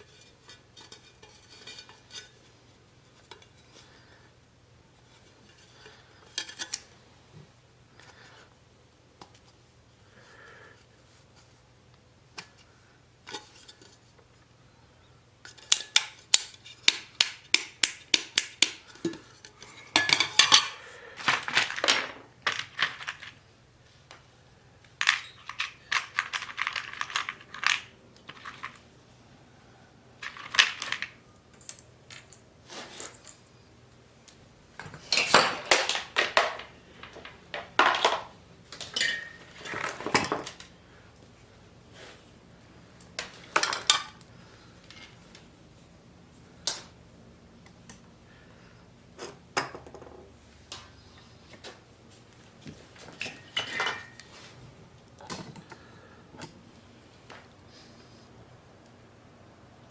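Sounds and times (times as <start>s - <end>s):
metal tools clinking and clattering: 19.7s - 23.3s, 25.0s - 28.8s, 34.8s - 40.6s, 53.2s - 54.3s.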